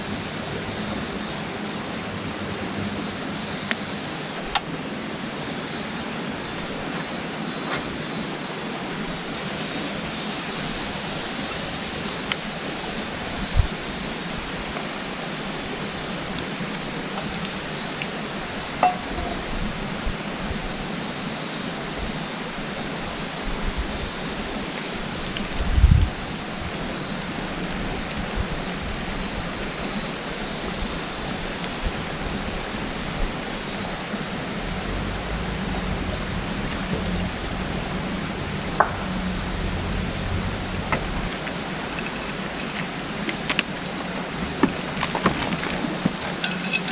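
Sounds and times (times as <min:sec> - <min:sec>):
rushing water: 0:03.3 - 0:46.9
faint knocks: 0:36.1 - 0:41.3
low thump: 0:36.6 - 0:41.3.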